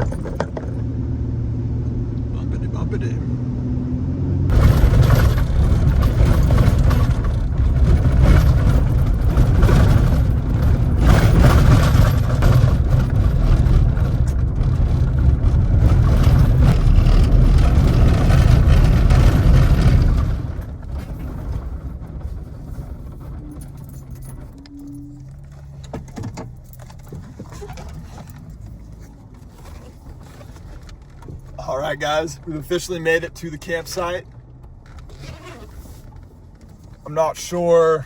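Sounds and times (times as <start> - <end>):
low hum: 0.0 - 25.9
pickup truck on bumpy dirt road: 0.0 - 38.0
rattling: 4.5 - 38.0.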